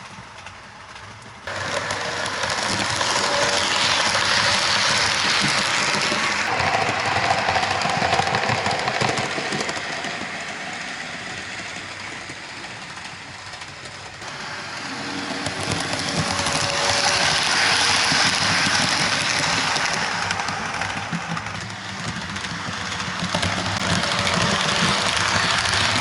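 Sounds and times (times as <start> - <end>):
model train running on track: 0.0 - 26.0.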